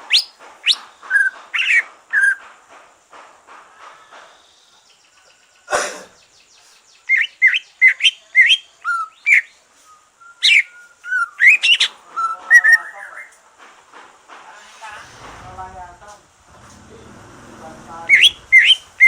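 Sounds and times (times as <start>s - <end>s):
bird whistled song: 0.0s - 2.4s, 4.4s - 13.4s, 18.1s - 19.0s
brief noisy burst: 14.4s - 19.0s.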